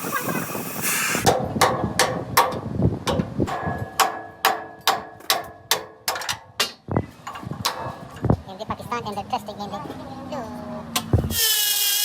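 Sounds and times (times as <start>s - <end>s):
hammer striking steel: 1.3s - 6.8s.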